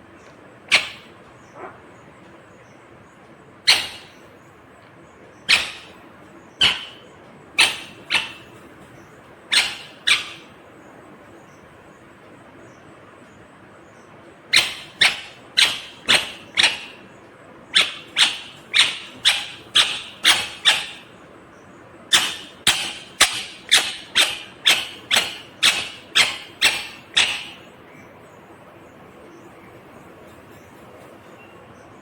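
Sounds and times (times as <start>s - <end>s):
parrot screeching: 0.7s - 1.8s, 3.7s - 4.3s, 5.5s - 6.0s, 6.6s - 8.8s, 9.5s - 10.5s, 14.5s - 17.1s, 17.7s - 21.1s, 22.1s - 27.7s.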